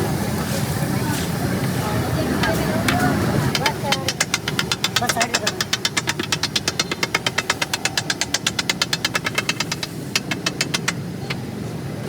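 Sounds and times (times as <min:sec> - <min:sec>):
metal utensil clacking: 0:02.4 - 0:11.5.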